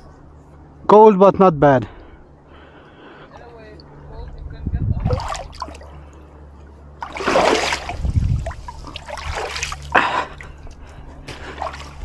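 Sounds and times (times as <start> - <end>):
water splashing: 2.5 - 12.0.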